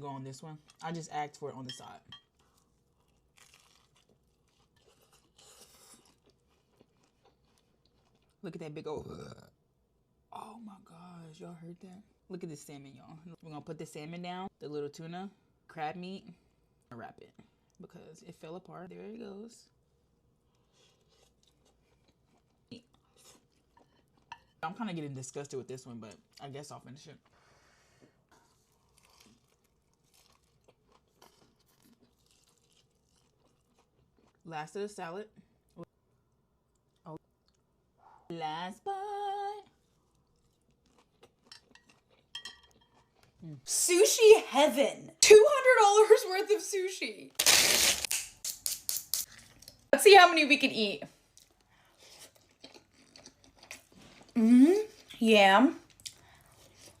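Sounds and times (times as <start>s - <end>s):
soft mouth and food noises: 2.2s - 8.4s, 20.4s - 24.6s, 39.6s - 43.7s, 51.2s - 55.2s
wet mouth clicks: 48.0s - 49.8s.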